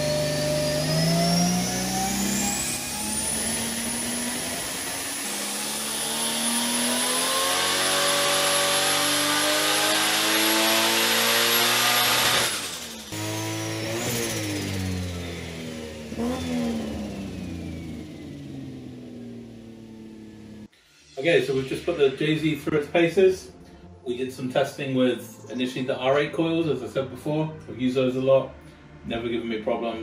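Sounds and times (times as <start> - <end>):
high turbo whistle: 0.0 - 8.9
engine revving under load: 0.0 - 20.7.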